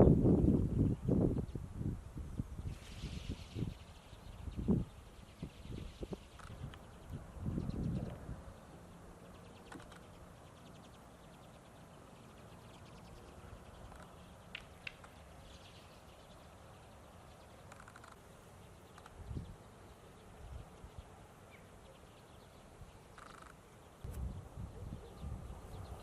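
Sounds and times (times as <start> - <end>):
faint short bird calls: 23.1 - 24.2.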